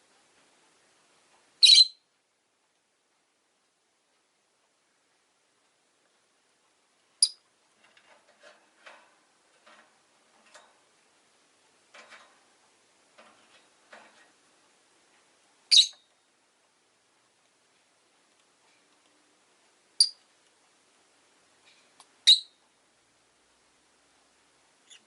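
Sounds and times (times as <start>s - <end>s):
soft bird chirps and clicks: 7.2s - 7.5s, 20.0s - 20.6s.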